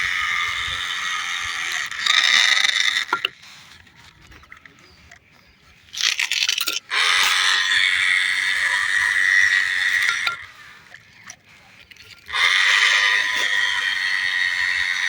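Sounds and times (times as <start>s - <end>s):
toy motor whining: 0.0s - 15.0s.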